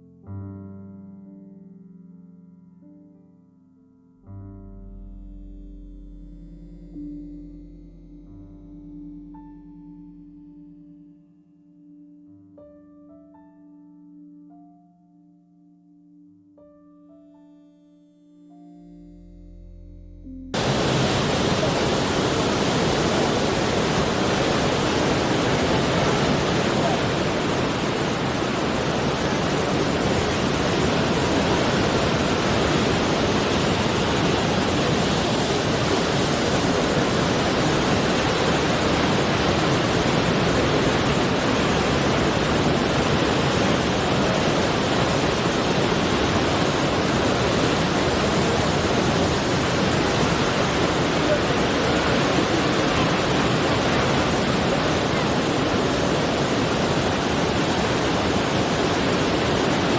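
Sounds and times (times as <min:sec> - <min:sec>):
rushing water: 0:20.6 - 0:59.9.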